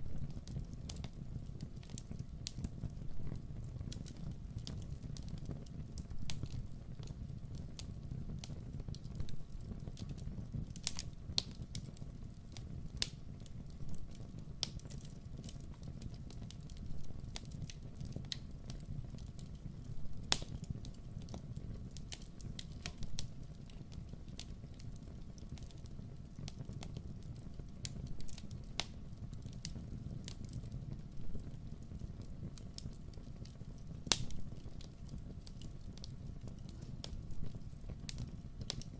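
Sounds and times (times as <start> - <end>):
low rumble of burning: 0.0 - 38.9
wood fire crackling: 0.0 - 38.9.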